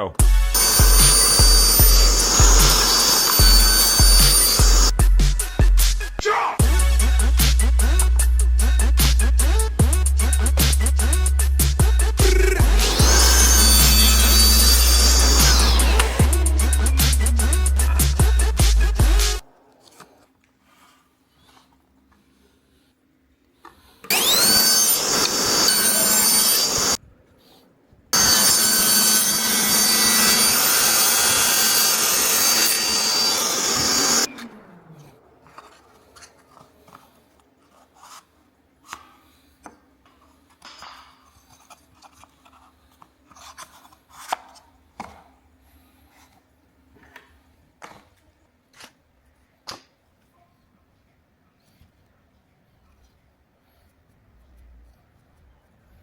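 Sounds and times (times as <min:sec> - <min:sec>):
power tool cutting wood: 0:00.3 - 0:05.0, 0:12.0 - 0:19.4, 0:24.1 - 0:27.0, 0:28.2 - 0:36.6.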